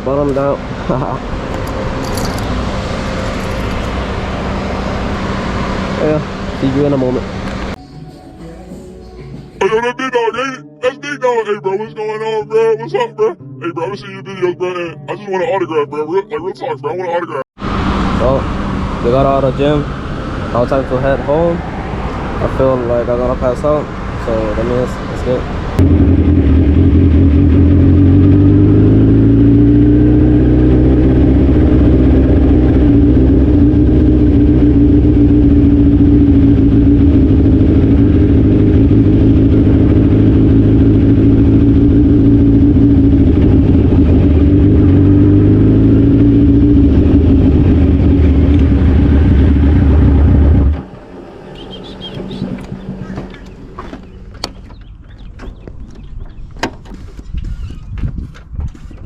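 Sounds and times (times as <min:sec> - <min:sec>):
motorcycle engine running: 0:01.5 - 0:04.2, 0:25.8 - 0:56.4.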